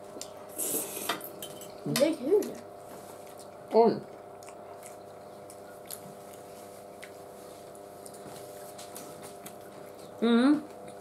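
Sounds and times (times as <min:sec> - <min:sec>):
steady low hum: 0:00.0 - 0:11.0
chewing spaghetti: 0:02.9 - 0:11.0.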